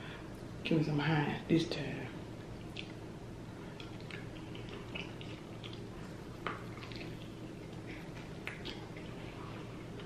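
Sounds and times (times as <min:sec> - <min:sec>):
wet chewing and mouth clicks: 0:02.5 - 0:10.0.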